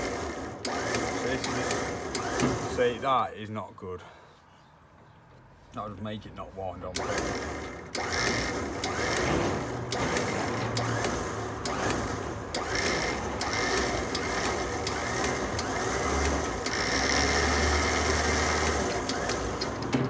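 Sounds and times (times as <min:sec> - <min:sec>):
winch motor whir: 0:00.0 - 0:03.1, 0:06.9 - 0:20.0
cable clicking on winch drum: 0:00.1 - 0:02.7, 0:07.0 - 0:20.0.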